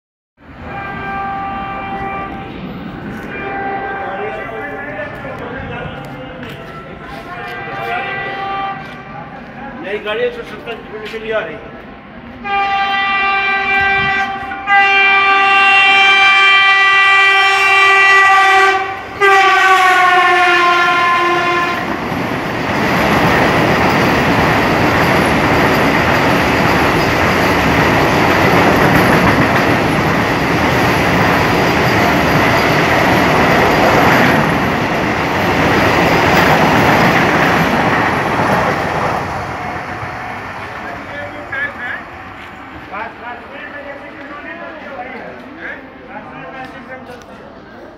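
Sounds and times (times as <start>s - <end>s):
train coaches rushing past: 0.4s - 47.9s
train horn: 0.6s - 4.6s, 6.7s - 9.2s, 12.4s - 22.0s.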